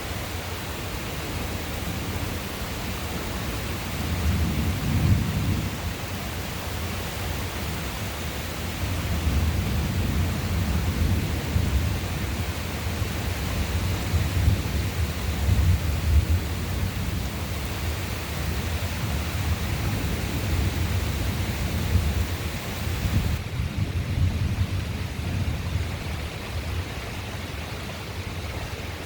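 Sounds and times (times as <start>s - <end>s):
rain hissing: 0.0s - 26.0s
thunder rumbling: 4.0s - 6.1s, 8.7s - 26.2s.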